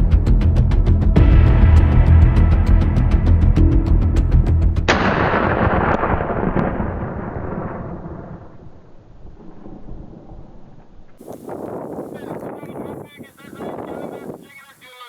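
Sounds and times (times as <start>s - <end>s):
deep rumbling boom: 0.0s - 10.7s.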